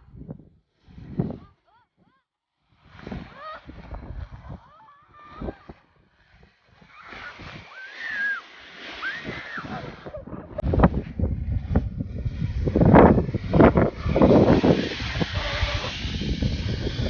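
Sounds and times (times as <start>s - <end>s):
wind buffeting microphone: 2.8s - 17.0s
high rising and falling cries: 6.8s - 10.7s.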